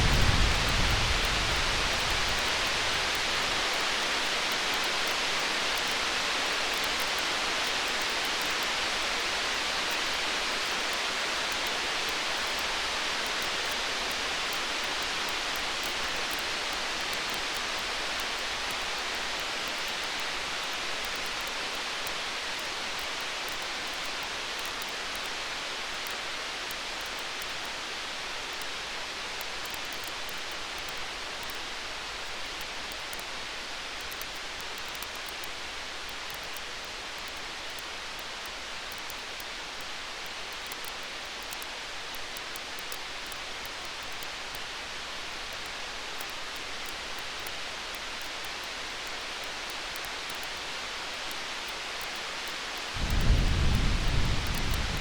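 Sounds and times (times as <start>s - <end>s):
steady rain-like hiss: 0.0s - 55.0s
faint fine crackles: 52.8s - 55.0s.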